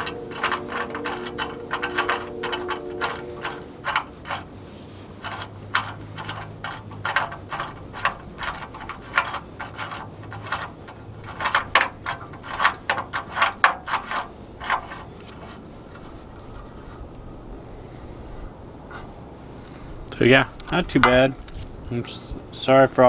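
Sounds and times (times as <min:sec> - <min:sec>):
hand tools clinking on steel: 0:00.0 - 0:16.8.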